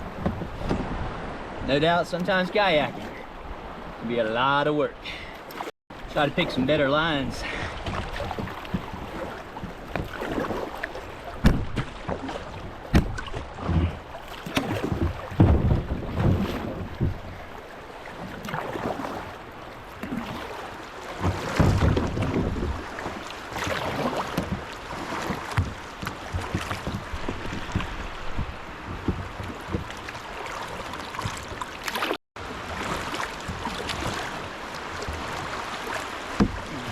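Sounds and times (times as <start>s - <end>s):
paddle knocks: 0.0s - 1.1s, 7.8s - 32.2s, 32.8s - 36.9s
paddle strokes splashing: 0.0s - 4.0s, 5.3s - 36.9s
wind on microphone: 14.7s - 17.5s, 25.6s - 29.9s.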